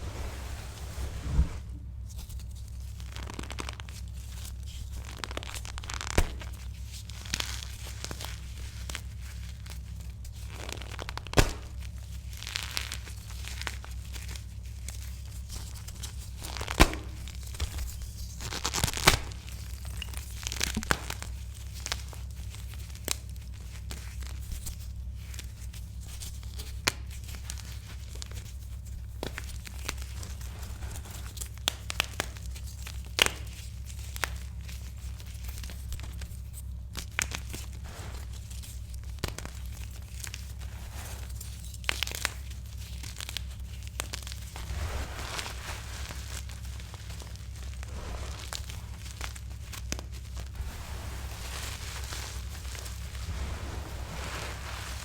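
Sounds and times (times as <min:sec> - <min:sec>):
low steady hum: 0:00.0 - 0:26.6, 0:33.6 - 0:55.0
chalk being crushed: 0:44.0 - 0:55.0.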